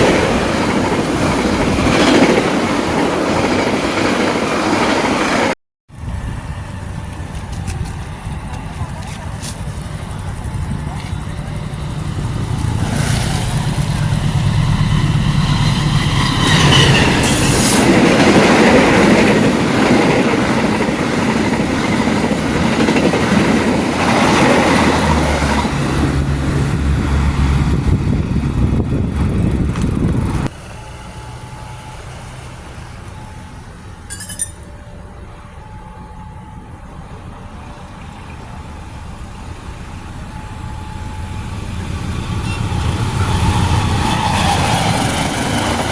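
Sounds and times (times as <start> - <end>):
locomotive engine: 0.0 - 45.9
train wheels clattering on rails: 6.8 - 26.7.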